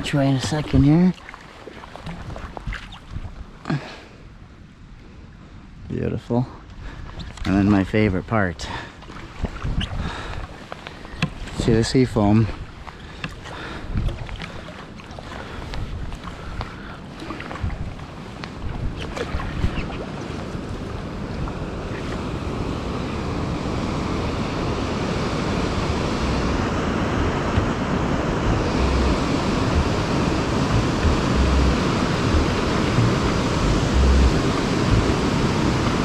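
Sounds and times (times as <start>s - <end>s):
lake waves washing and breaking: 0.0s - 4.1s, 6.8s - 36.0s
wind buffeting the microphone: 9.2s - 12.9s, 13.5s - 14.6s, 15.2s - 36.0s.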